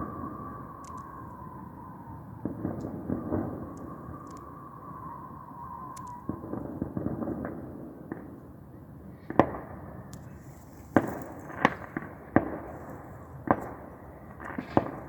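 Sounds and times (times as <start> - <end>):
fireworks bangs: 2.4 - 4.6, 9.2 - 15.0
fireworks crackling: 9.3 - 15.0.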